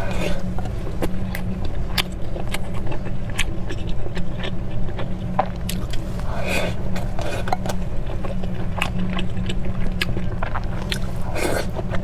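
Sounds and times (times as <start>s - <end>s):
chewing with wet mouth clicks: 0.0s - 12.0s
steady low hum: 0.0s - 12.0s.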